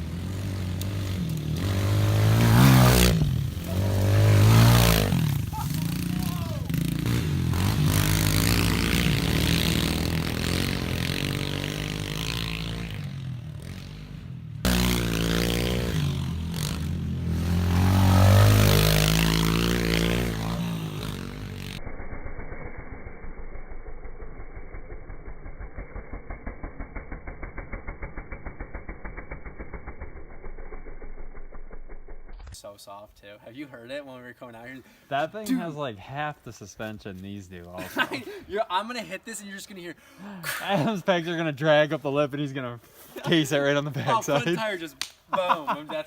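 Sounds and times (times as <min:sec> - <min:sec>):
pit bike engine revving: 0:00.0 - 0:32.5.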